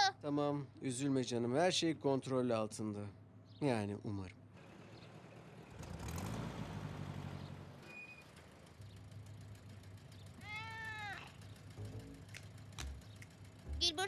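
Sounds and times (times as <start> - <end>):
cartoon cat meowing: 10.4 - 11.3.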